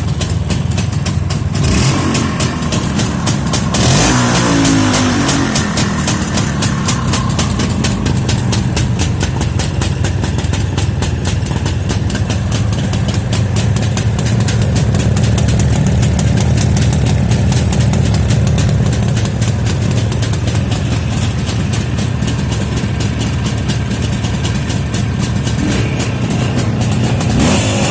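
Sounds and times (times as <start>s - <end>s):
two-stroke motorcycle engine idling: 0.0s - 27.9s.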